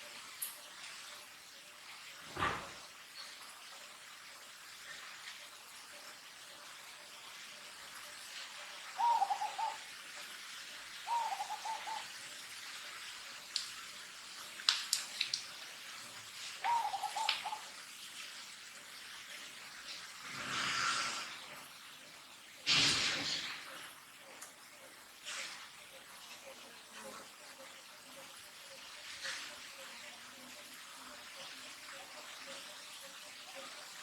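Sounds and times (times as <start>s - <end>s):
bird warbling call: 9.0s - 9.8s, 11.0s - 12.1s, 16.6s - 17.7s.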